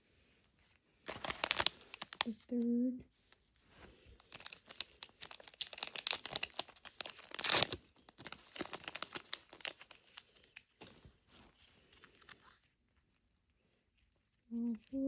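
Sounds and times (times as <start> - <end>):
plastic packaging crinkling and tearing: 1.0 - 2.4, 3.9 - 11.0.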